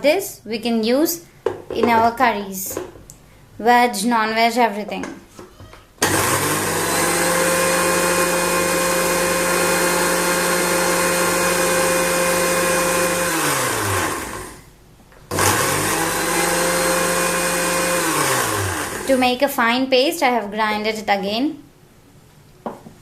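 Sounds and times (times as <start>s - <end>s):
electric mixer grinder grinding seeds: 6.0s - 14.7s, 15.3s - 19.4s.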